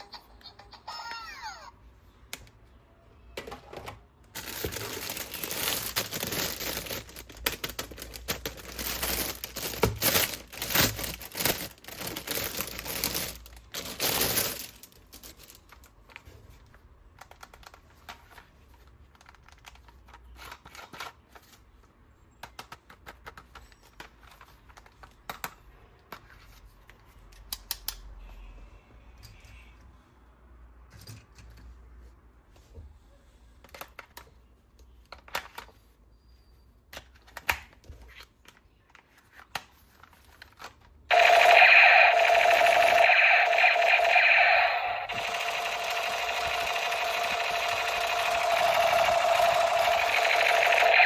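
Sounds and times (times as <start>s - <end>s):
plastic packaging tearing and crinkling: 4.4s - 15.8s
plastic parts clicking and tapping: 22.4s - 26.4s.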